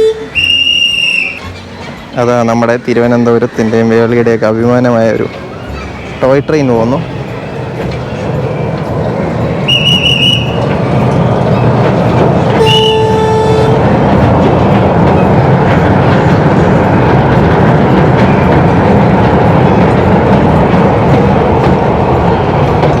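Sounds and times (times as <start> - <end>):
toy train horn: 0.0 - 1.3, 12.6 - 13.8.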